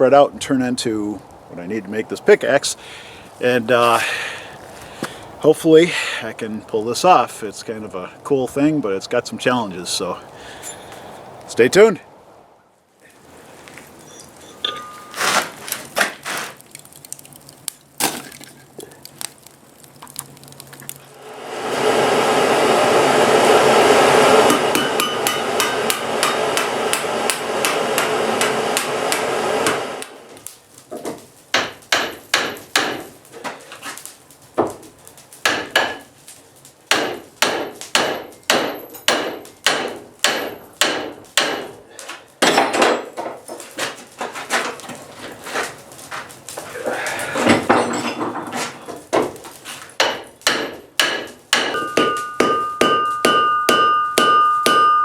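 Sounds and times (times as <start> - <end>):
loud rushing noise: 21.2 - 30.0
hammer blows on anvil: 24.3 - 29.8, 50.0 - 55.0.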